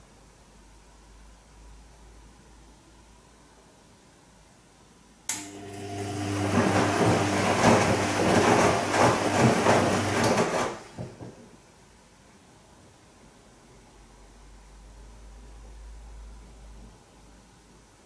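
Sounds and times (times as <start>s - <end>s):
washing machine motor humming: 5.3s - 11.5s
laundry and water sloshing: 6.0s - 11.4s.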